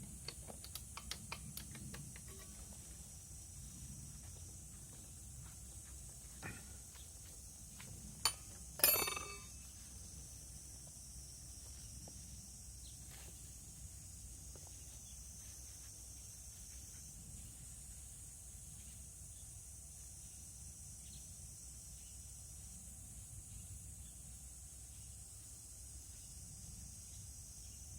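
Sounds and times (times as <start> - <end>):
metallic clink: 8.2 - 9.7.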